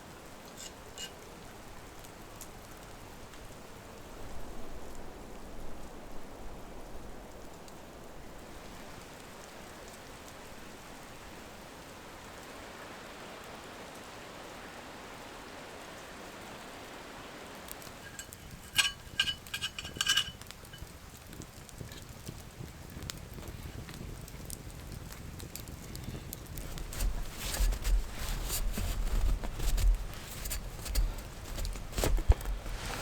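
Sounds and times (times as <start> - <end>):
ringing clinks: 18.0 - 20.8
steady hissing noise: 25.7 - 33.0.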